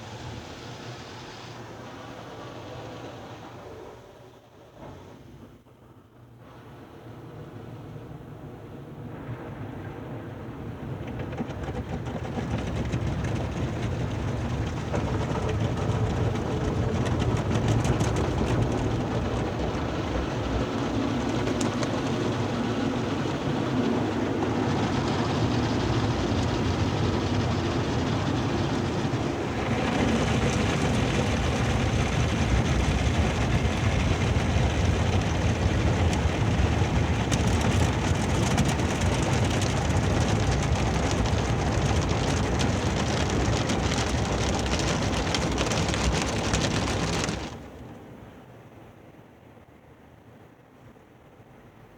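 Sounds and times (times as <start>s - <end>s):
car wash machinery rumbling: 9.1s - 48.2s.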